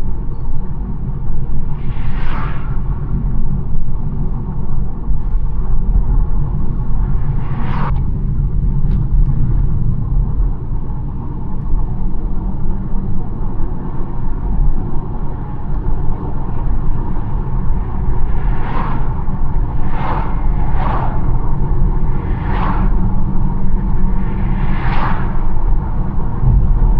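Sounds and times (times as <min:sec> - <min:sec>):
car engine and tyre rumble: 0:00.0 - 0:26.9
whooshing noise: 0:22.1 - 0:26.9.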